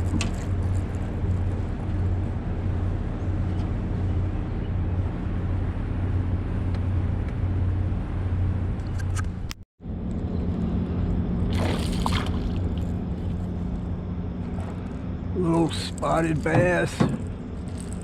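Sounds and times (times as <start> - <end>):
boat motor running: 10.3 - 18.0
moving water: 11.4 - 13.6
water splashing: 11.5 - 13.4.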